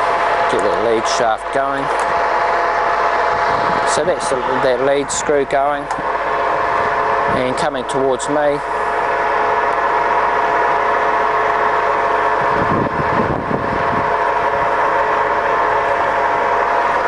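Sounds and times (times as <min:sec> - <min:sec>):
low rumble: 0:00.0 - 0:09.5
lathe geared whine and hum: 0:00.0 - 0:17.0.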